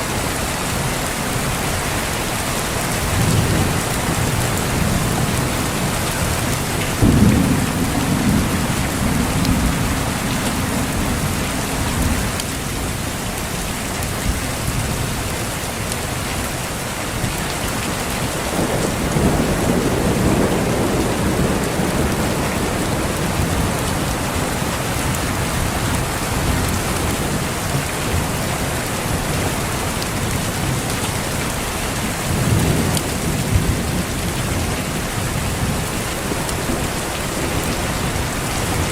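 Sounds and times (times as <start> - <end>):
heavy rain: 0.0 - 38.9
rolling thunder: 3.0 - 13.0, 18.5 - 28.3.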